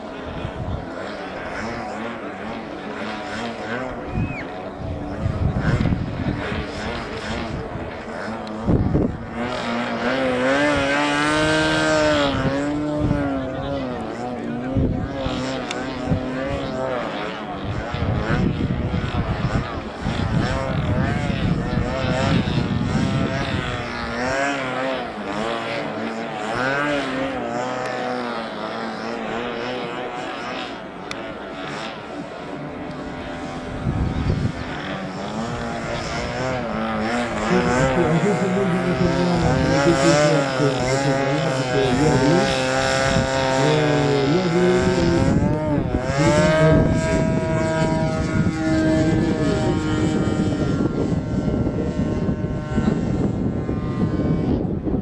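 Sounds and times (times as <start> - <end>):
model aircraft engine whining: 0.0 - 55.0
wind buffeting microphone: 3.9 - 16.8, 17.5 - 25.8, 32.6 - 55.0.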